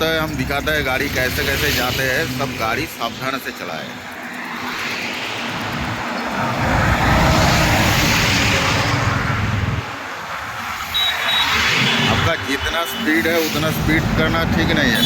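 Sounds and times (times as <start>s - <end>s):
truck passing close by: 4.3s - 9.9s.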